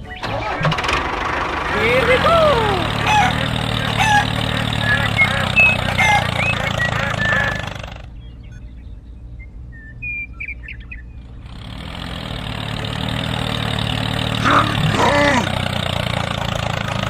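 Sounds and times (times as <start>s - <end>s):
bird chirps: 0.0s - 0.3s, 3.0s - 11.4s
engine low hum: 0.0s - 17.0s.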